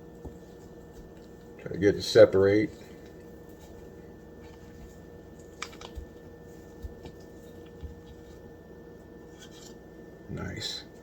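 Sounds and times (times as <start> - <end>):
faint steady hum: 0.0 - 11.0
hands peeling frozen bacon slices: 5.3 - 8.2.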